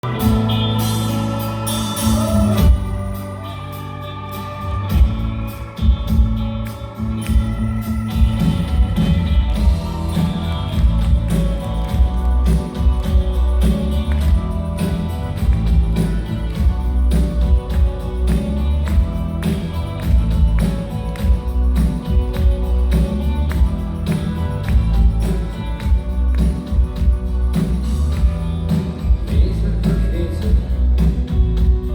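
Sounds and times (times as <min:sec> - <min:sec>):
live rock band: 0:00.0 - 0:31.9
drums striking: 0:08.1 - 0:31.9.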